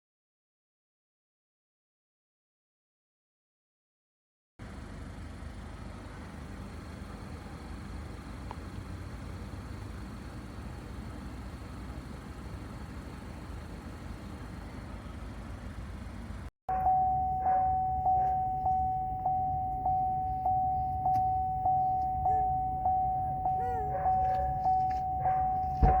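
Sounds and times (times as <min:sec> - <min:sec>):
car engine and cabin noise: 0:04.6 - 0:26.0
car warning chime dinging: 0:16.7 - 0:26.0.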